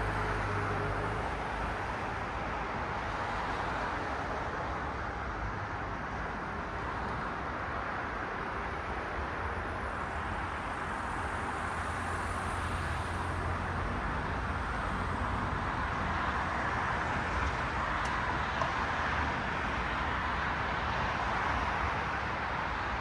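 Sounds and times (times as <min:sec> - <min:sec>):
cars passing: 0:09.9 - 0:22.4.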